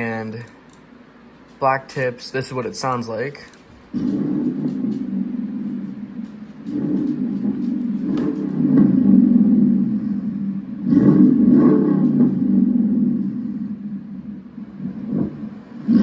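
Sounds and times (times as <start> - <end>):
car engine revving: 4.0 - 13.6.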